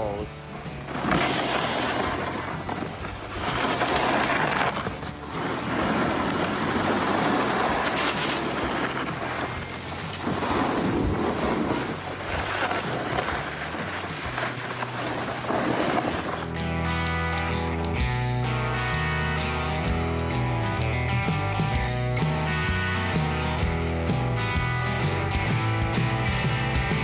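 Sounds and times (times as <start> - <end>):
snowboard scraping snow: 0.0 - 16.6.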